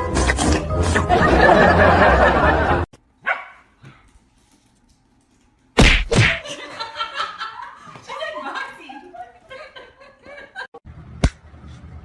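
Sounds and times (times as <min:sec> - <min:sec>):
dog barking: 0:03.2 - 0:03.7.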